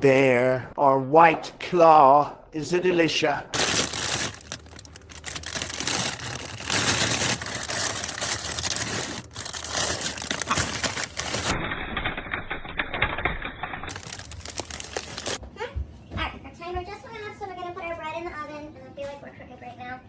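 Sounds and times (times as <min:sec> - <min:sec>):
hard objects clicking and clattering: 0:03.6 - 0:15.4.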